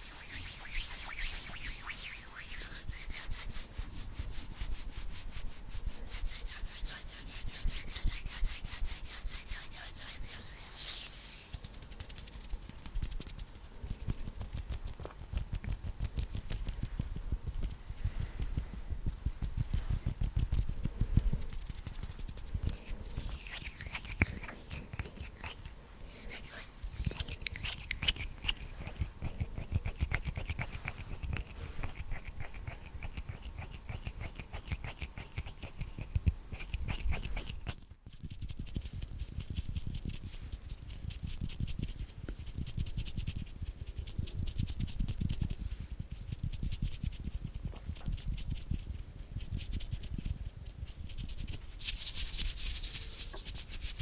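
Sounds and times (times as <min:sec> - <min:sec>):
hands rubbing and tapping: 0:06.4 - 0:40.6, 0:51.4 - 0:54.0.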